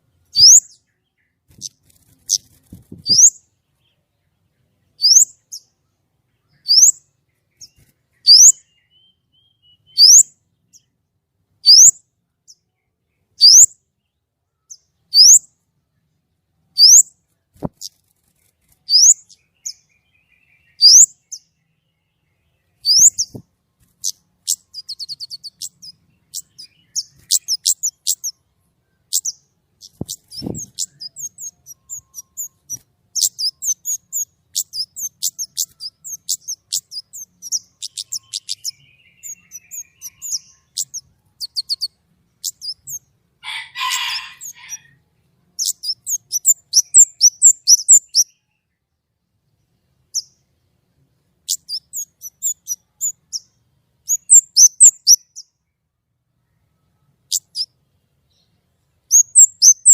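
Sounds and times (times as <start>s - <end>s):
harsh rasping bird call: 43.4s - 44.9s.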